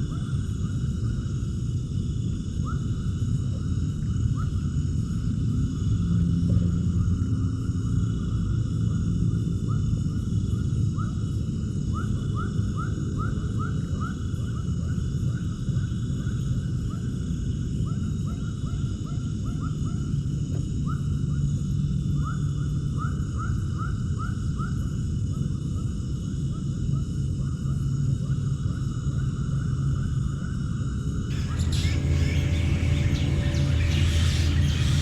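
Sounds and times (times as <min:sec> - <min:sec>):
high background hum: 0:31.3 - 0:35.0
short rising animal calls: 0:31.3 - 0:35.0
steady low rumble: 0:31.3 - 0:35.0.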